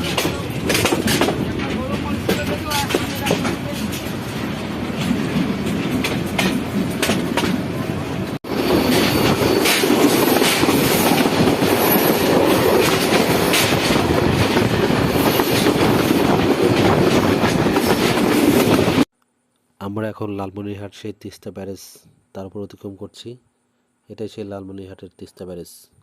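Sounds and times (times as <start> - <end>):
wheels clacking over rail joints: 0.0 - 7.7, 8.6 - 19.0
train rumbling: 0.0 - 19.1.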